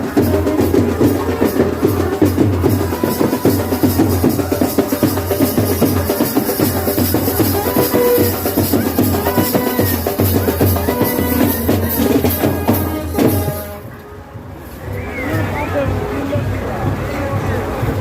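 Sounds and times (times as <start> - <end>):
loud music with fast drums: 0.0 - 13.9.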